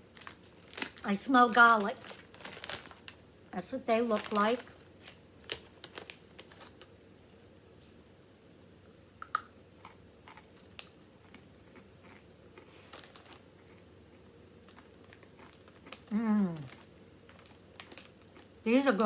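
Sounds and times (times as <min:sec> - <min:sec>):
chewing crunchy pretzels: 0:09.2 - 0:18.6.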